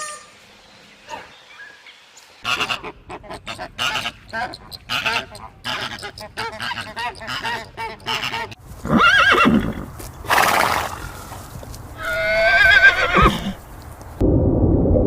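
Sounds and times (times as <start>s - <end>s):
rapid honking calls: 0.0s - 0.5s, 2.4s - 9.7s
horse snorting: 3.1s - 11.4s
horse neighing: 6.6s - 11.2s, 12.0s - 13.6s
low rumbling noise: 13.5s - 15.0s.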